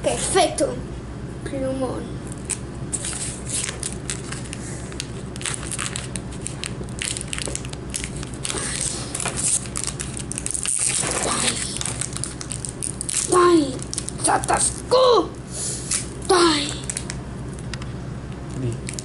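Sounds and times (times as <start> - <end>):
plastic packaging crackling: 2.3 - 14.9, 16.8 - 17.2, 18.5 - 19.0.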